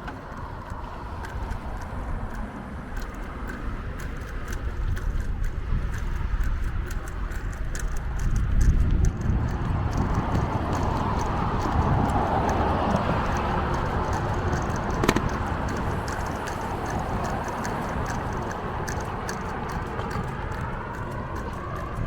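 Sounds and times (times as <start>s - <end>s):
bicycle clicks and rattles: 0.0s - 22.0s
bicycle tyre and wind noise: 0.0s - 22.0s.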